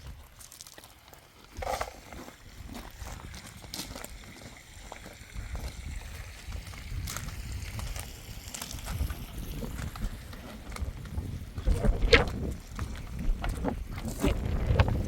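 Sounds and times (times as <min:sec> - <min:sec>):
wind buffeting microphone: 0:05.2 - 0:15.0.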